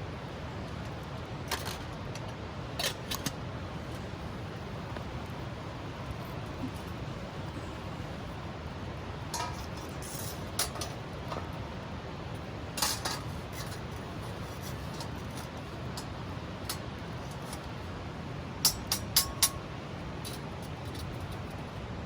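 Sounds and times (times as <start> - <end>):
cookware clinking and knocking: 9.4 - 10.9.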